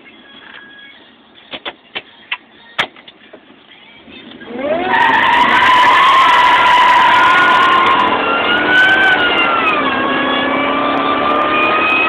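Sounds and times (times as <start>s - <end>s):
truck engine revving: 4.1s - 12.0s
tire squeal in burnout: 4.5s - 12.0s.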